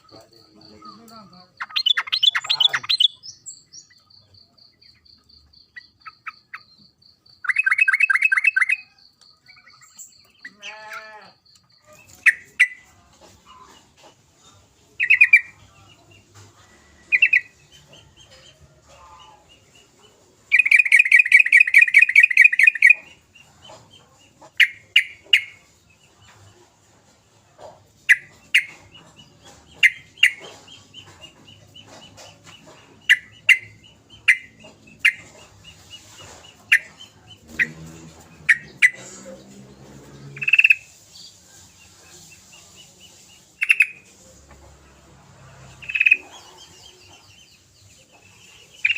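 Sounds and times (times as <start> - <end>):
bird chattering trill: 0.0 - 10.9, 15.0 - 15.6, 20.5 - 23.6, 28.0 - 39.2, 40.3 - 41.0, 43.6 - 44.1
bird chirping: 0.0 - 48.9.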